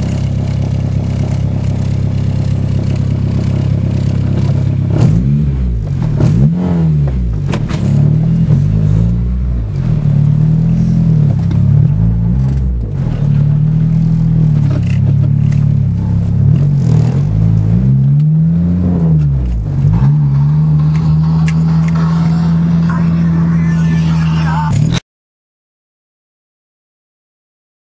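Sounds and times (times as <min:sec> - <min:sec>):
car engine exhaust revving: 0:00.0 - 0:24.9.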